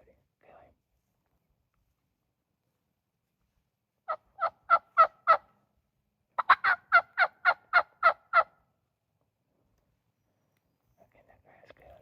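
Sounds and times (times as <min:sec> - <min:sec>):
wild turkey yelping: 0:04.0 - 0:05.6, 0:06.4 - 0:08.6.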